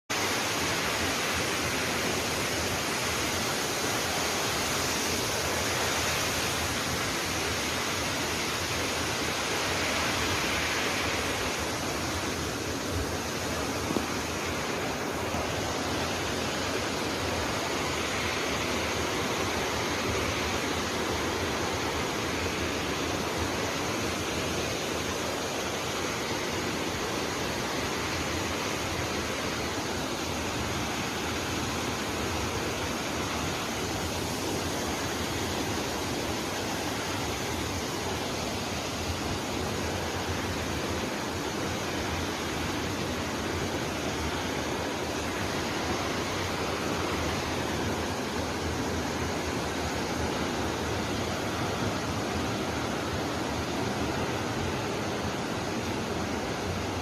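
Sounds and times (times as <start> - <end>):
waterfall rushing: 0.1 - 57.0.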